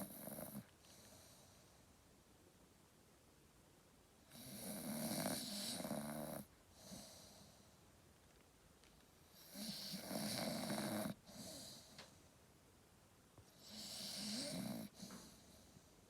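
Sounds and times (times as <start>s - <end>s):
dog snoring: 0.0s - 1.6s, 4.3s - 7.6s, 9.3s - 12.0s, 13.5s - 15.8s.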